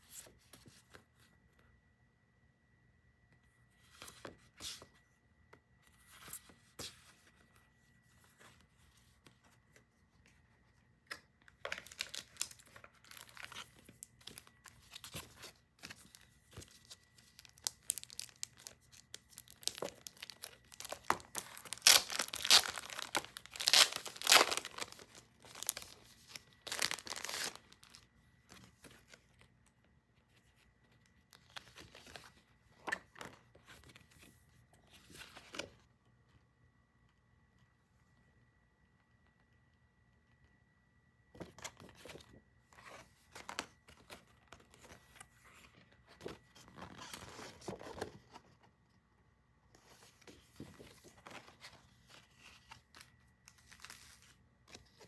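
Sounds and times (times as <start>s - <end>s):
wrapping tearing and crinkling: 11.6s - 15.3s, 16.1s - 28.0s.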